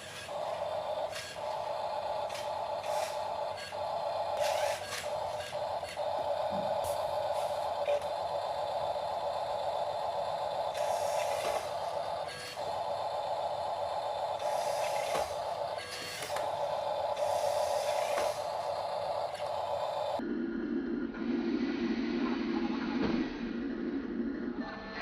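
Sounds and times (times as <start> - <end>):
small electric motor whirring: 0.0 - 20.2.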